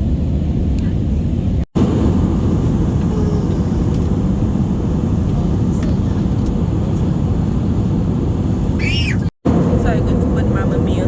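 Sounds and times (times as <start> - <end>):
jet engine and airflow rumble in cabin: 0.0 - 11.0.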